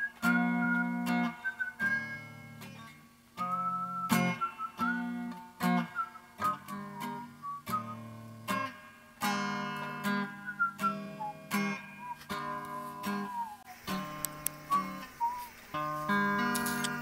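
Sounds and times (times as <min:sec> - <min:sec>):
sliding guitar melody: 0:00.0 - 0:17.0
strummed acoustic guitar chords: 0:00.0 - 0:17.0.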